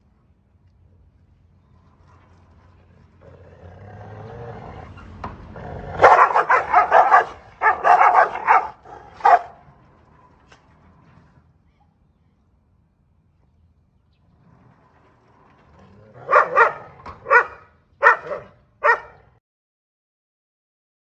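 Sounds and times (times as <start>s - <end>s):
dog growling: 3.0s - 9.5s, 15.7s - 18.5s
dog barking: 5.9s - 9.6s, 16.2s - 19.3s.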